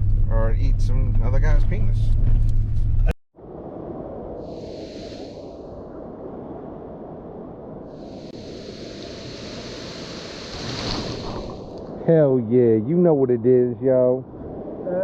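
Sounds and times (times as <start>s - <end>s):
truck engine rumble: 0.0s - 3.2s
water spray hissing from tyres: 4.5s - 5.5s, 8.0s - 11.8s.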